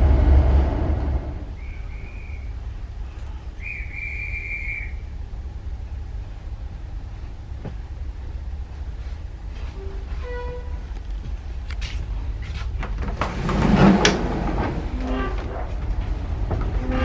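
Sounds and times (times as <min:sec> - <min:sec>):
train rumbling: 0:00.0 - 0:17.0
high whistle blasts: 0:01.4 - 0:02.8, 0:03.5 - 0:05.2.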